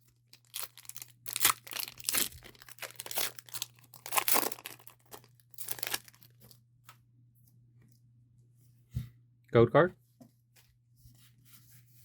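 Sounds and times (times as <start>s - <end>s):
foil wrapper tearing and crinkling: 0.3s - 6.4s.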